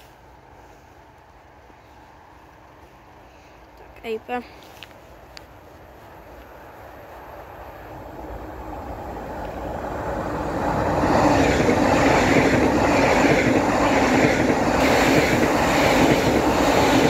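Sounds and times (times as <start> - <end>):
express train rushing past: 6.5 - 17.0.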